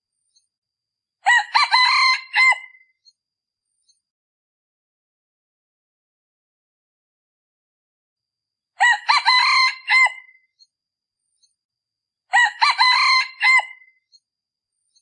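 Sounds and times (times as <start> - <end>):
rooster crowing: 1.2 - 2.8, 8.8 - 10.4, 12.3 - 13.9.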